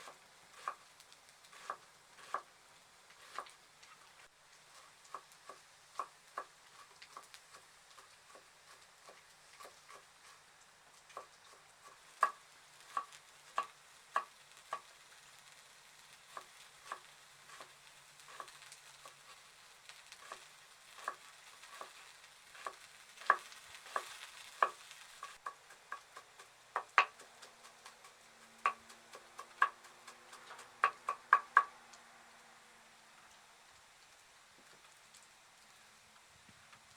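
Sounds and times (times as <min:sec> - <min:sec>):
faint frying sizzle: 0:00.0 - 0:36.9
utensil knocking against pan: 0:25.5 - 0:28.1, 0:28.7 - 0:31.7.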